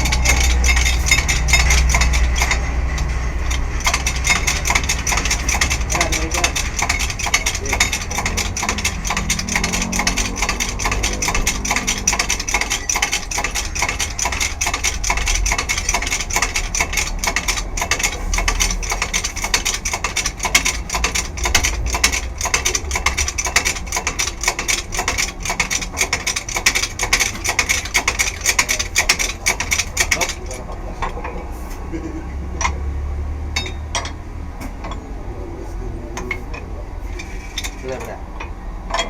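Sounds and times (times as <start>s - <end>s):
hand tool clicking rapidly: 0.0s - 30.6s.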